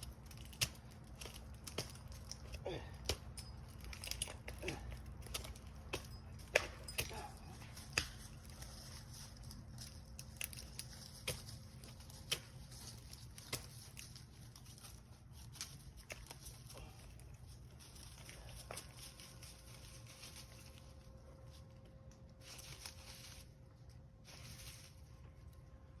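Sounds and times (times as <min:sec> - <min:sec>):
climbing spikes stabbing bark: 0:00.0 - 0:08.8, 0:09.8 - 0:15.0.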